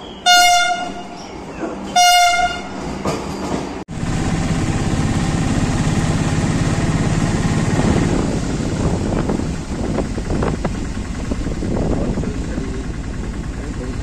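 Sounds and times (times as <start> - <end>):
moving train rumble: 0.0 - 14.0
train horn blast: 0.2 - 1.2, 1.9 - 2.9.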